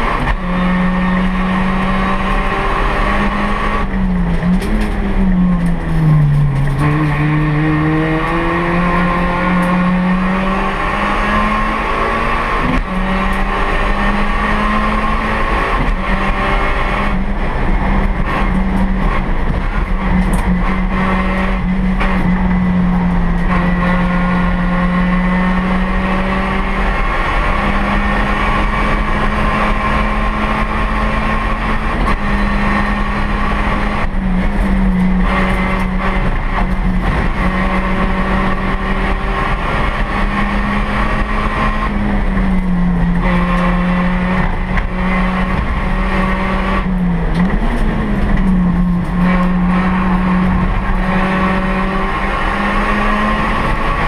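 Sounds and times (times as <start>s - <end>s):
race car engine revving: 0.0s - 54.0s
road and tyre noise: 0.0s - 54.0s.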